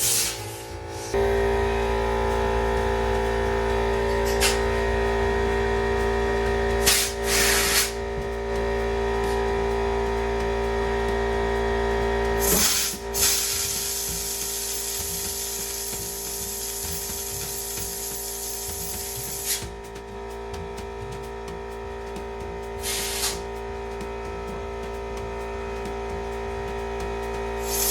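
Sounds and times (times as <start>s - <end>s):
compressed air hissing: 0.0s - 1.2s, 6.8s - 8.1s, 12.4s - 19.7s, 22.8s - 23.5s, 27.6s - 27.9s
steady hum with fixed tones: 0.0s - 27.9s.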